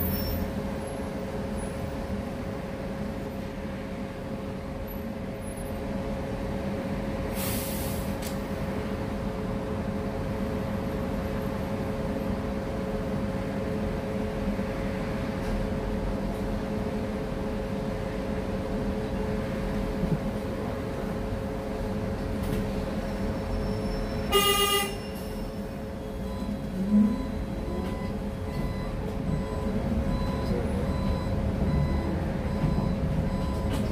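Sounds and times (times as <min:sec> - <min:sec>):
bus interior hum: 0:00.0 - 0:33.9
vehicle horn honk: 0:24.3 - 0:25.0.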